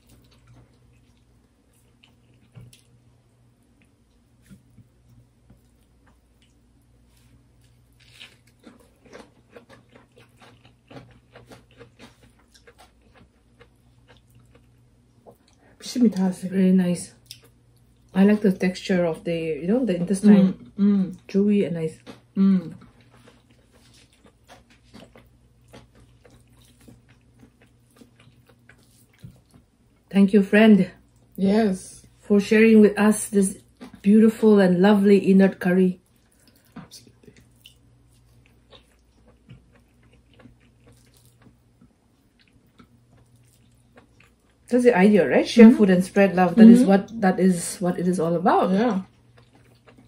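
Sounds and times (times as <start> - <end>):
crunching and chewing food: 0.0 - 30.1, 30.9 - 31.4, 33.1 - 50.0.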